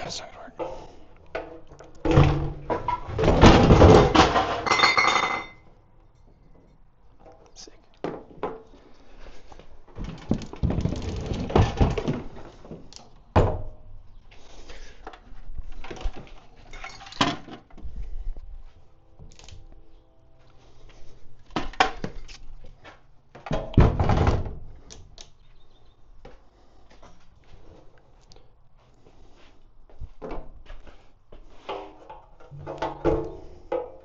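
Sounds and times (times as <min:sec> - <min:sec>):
tools knocking and clunking: 0:31.6 - 0:34.0.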